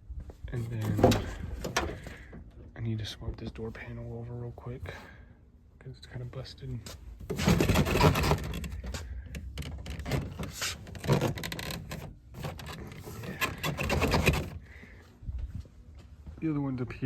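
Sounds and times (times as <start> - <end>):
plastic trim clicking and rattling: 7.3 - 14.6.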